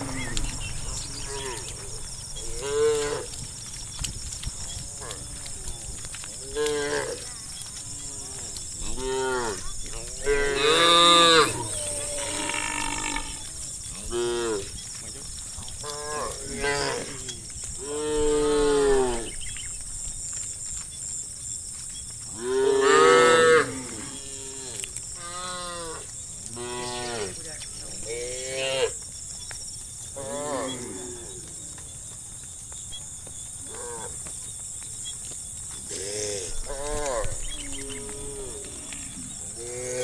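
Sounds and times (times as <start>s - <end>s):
cattle mooing: 0.0s - 3.4s.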